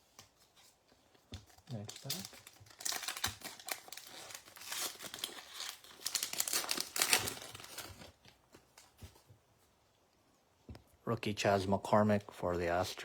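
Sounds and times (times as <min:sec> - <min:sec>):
wrapper tearing and crinkling: 0:01.6 - 0:08.2.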